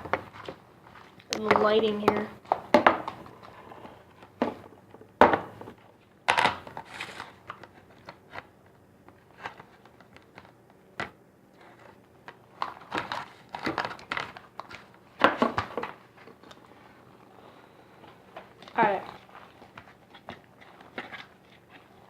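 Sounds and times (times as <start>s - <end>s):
hands rustling and scraping containers: 11.6s - 22.0s.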